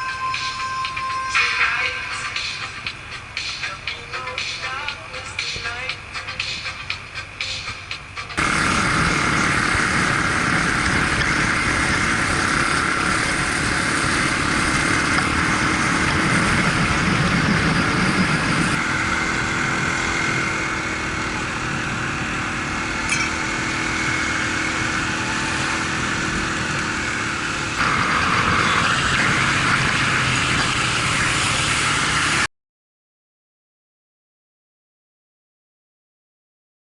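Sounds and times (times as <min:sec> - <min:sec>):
rushing noise: 0:00.0 - 0:32.5
motorbike engine running: 0:02.6 - 0:32.5.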